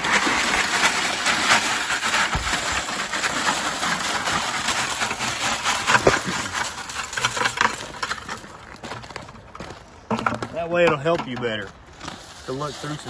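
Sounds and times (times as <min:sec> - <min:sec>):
stones rattling on wire screen: 0:00.0 - 0:09.0
heavy knocks of rocks: 0:00.1 - 0:07.8.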